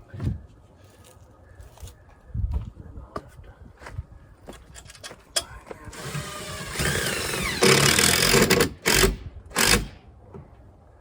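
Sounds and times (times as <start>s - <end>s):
power screwdriver driving screw: 6.0s - 10.0s.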